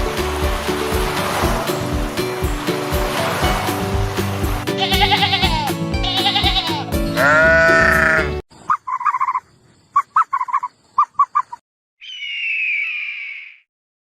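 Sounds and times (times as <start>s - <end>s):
background music: 0.0s - 8.4s
animal bleating: 4.7s - 8.4s.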